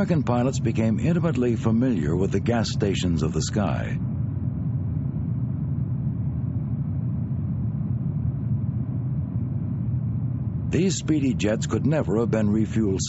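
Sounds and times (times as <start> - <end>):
aircraft engines rumbling: 0.0 - 13.0.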